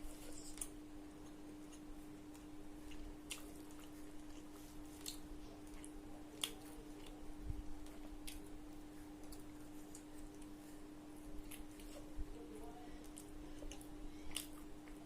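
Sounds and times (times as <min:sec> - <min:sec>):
steady low hum: 0:00.0 - 0:15.0
person chewing food: 0:00.1 - 0:12.2, 0:13.0 - 0:15.0.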